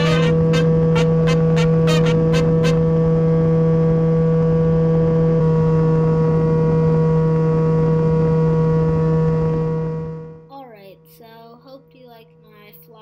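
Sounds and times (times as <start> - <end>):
electric motor and propeller droning: 0.0 - 10.4.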